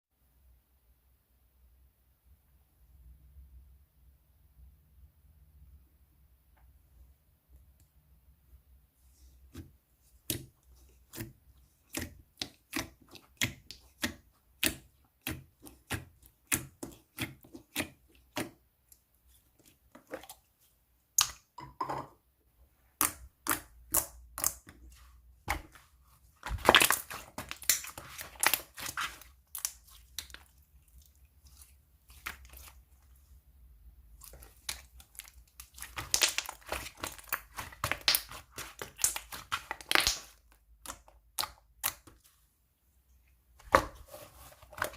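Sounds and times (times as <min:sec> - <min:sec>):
slime crackling and squishing: 0:09.1 - 0:21.5, 0:22.9 - 0:42.5, 0:43.6 - 0:44.9
slime clicking and popping: 0:26.4 - 0:30.5, 0:34.2 - 0:42.1.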